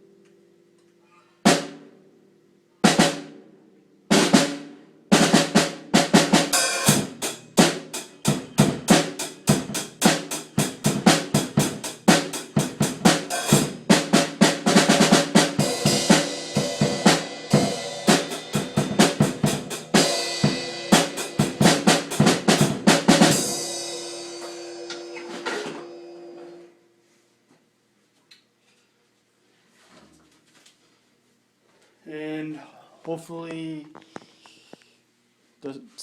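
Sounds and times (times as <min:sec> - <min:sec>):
damped snare drum rolls: 0:01.5 - 0:01.8, 0:02.8 - 0:03.4, 0:04.1 - 0:26.0.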